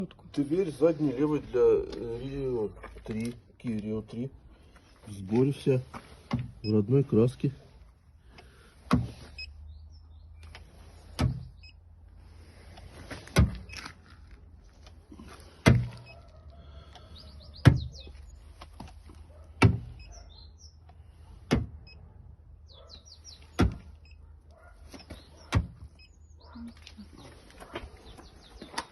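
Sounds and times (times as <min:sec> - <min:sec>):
birds chirping: 0:00.0 - 0:13.0, 0:14.5 - 0:28.9.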